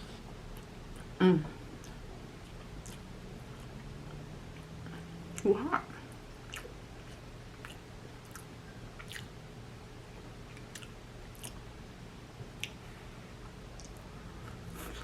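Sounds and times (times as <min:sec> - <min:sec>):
person chewing food: 0:00.5 - 0:05.4, 0:06.1 - 0:09.4, 0:10.4 - 0:11.7, 0:12.6 - 0:15.0
wet mouth smacks: 0:12.6 - 0:12.8.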